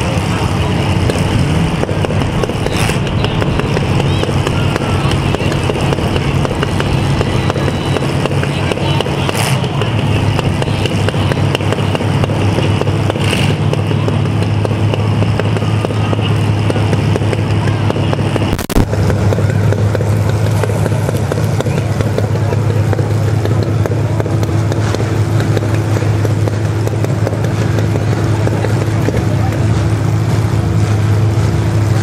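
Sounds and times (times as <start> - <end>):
car engines running: 0.0 - 32.0
short noise bursts: 0.1 - 21.6.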